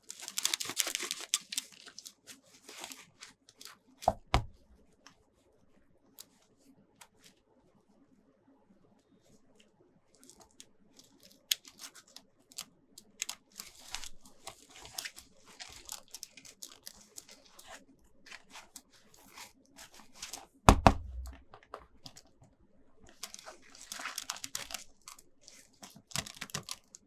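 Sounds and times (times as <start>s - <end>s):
packaging tearing and crinkling: 0.0s - 4.6s, 13.0s - 22.2s, 23.1s - 27.0s
loud knock: 20.7s - 21.7s.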